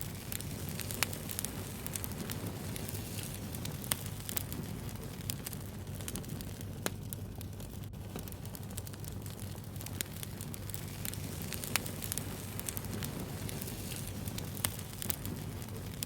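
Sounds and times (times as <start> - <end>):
fire crackling and snapping: 0.0 - 16.0
low rumble of flames: 0.0 - 16.0
sharp fire pops: 0.0 - 16.0.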